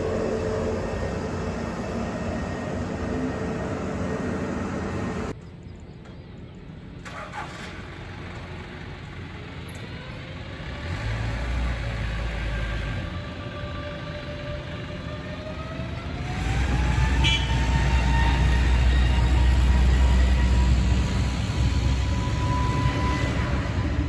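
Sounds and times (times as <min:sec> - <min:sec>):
jet engines running: 0:00.0 - 0:05.4.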